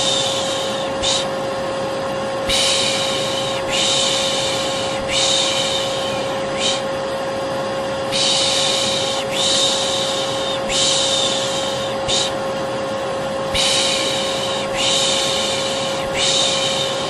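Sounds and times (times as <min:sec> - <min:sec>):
person shushing: 0:00.0 - 0:01.3, 0:02.5 - 0:06.9, 0:08.1 - 0:12.4, 0:13.5 - 0:17.0
vacuum cleaner running: 0:00.0 - 0:17.0.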